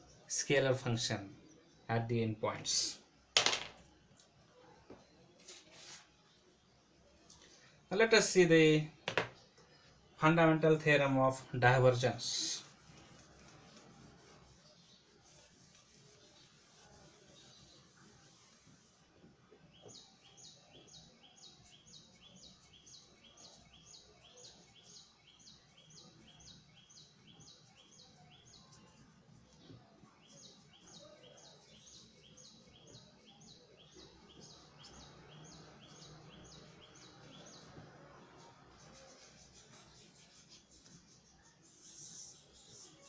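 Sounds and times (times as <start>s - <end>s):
bird chirping: 19.7s - 43.0s.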